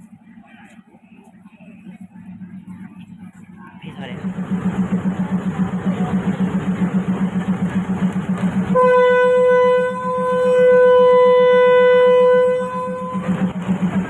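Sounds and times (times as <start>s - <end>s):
pulsing rumble of running train: 0.0s - 14.0s
train horn blast: 8.6s - 13.9s.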